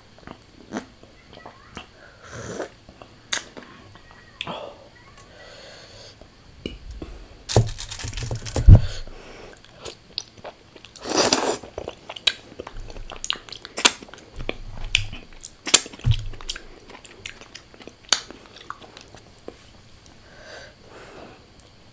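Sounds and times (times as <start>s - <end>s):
mouth chewing crunchy food: 6.7s - 19.4s.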